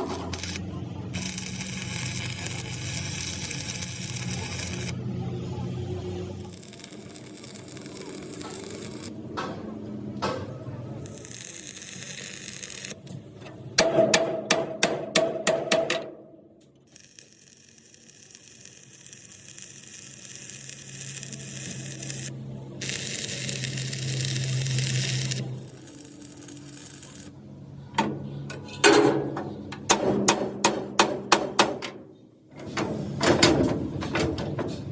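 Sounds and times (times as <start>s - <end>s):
machine hum with hiss: 0.0s - 9.2s, 16.9s - 27.3s
sharp metal knocks: 13.8s - 16.2s, 28.0s - 32.0s.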